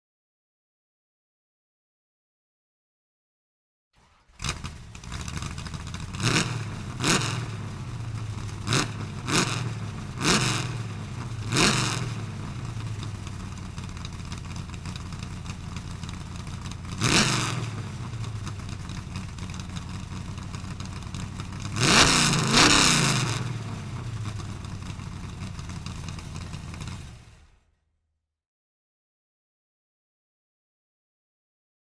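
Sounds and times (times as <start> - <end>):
engine idling with throttle revs: 4.0 - 27.8.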